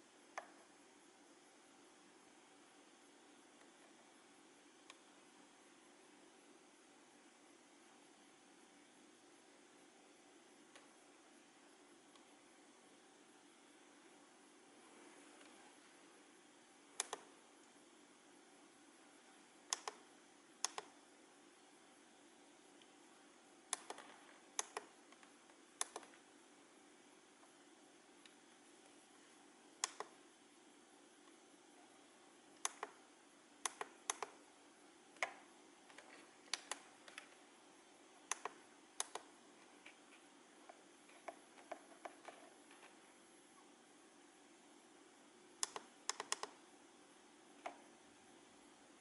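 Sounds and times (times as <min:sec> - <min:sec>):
faint steady hiss: 0:00.0 - 0:49.0
sharp clicks: 0:17.0 - 0:17.3, 0:19.7 - 0:20.0, 0:20.6 - 0:20.9, 0:23.7 - 0:25.2, 0:25.8 - 0:26.1, 0:29.8 - 0:30.2, 0:32.6 - 0:33.0, 0:33.6 - 0:34.4, 0:35.2 - 0:37.3, 0:38.3 - 0:39.3, 0:45.6 - 0:46.6.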